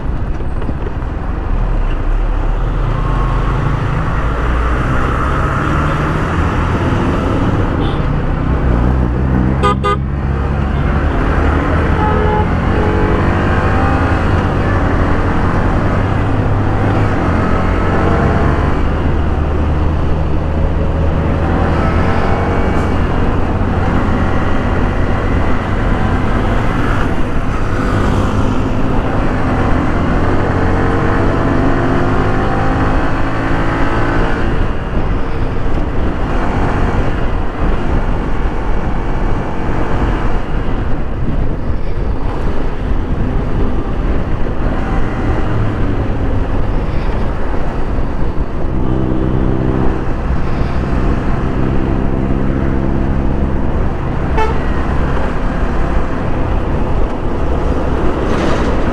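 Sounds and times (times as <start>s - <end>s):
motorcycle engine accelerating: 0.0s - 41.2s, 42.3s - 58.9s
road noise: 0.0s - 58.9s
vehicle horn tones: 7.8s - 8.2s, 9.6s - 10.1s, 10.7s - 14.1s, 54.2s - 55.1s.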